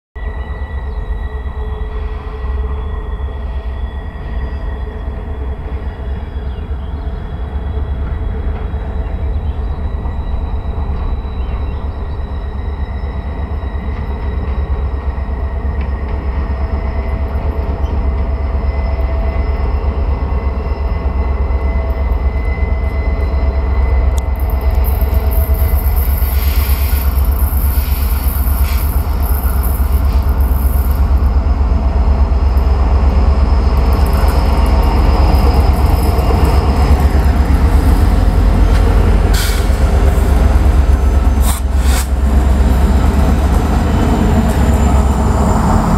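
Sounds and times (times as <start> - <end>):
diesel locomotive engine rumbling: 0.2 - 45.9
high hiss: 25.8 - 31.0.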